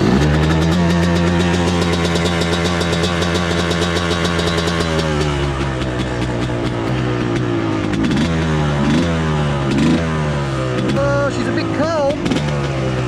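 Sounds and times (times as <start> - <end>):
motocross bike engine idling: 0.0 - 13.0
man talking: 10.9 - 12.2.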